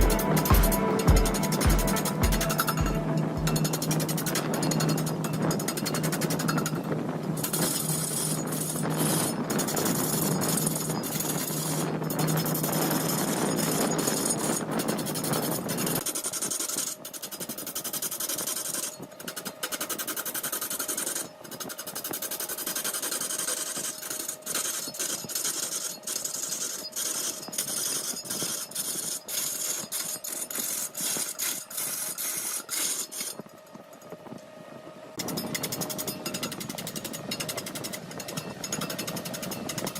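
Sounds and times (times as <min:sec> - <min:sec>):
lathe humming: 0:00.0 - 0:05.2
cutting tool scraping spinning wood: 0:03.5 - 0:33.5, 0:35.2 - 0:39.9.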